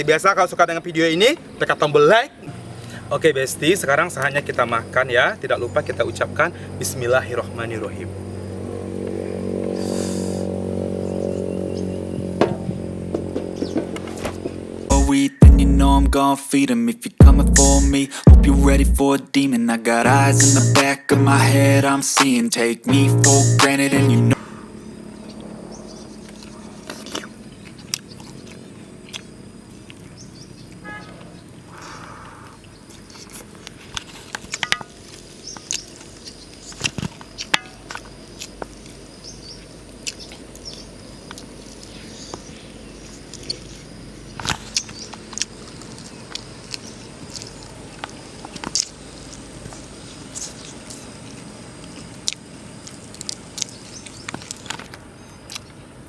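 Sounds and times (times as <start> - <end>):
crunching and chewing food: 24.4 - 56.0.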